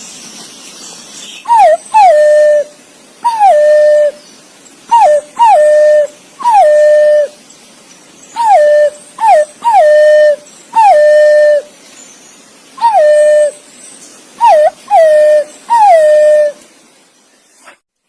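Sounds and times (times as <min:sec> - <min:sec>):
pigeon whistled calls: 0:01.4 - 0:04.2, 0:04.9 - 0:07.4, 0:08.3 - 0:11.7, 0:12.8 - 0:13.6, 0:14.4 - 0:16.6.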